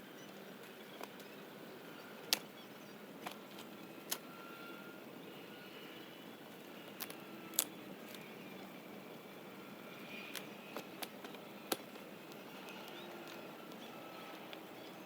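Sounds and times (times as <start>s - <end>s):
faint outdoor background: 0.0s - 15.0s
dry wood snapping: 2.2s - 2.5s, 6.6s - 8.3s, 10.1s - 13.8s.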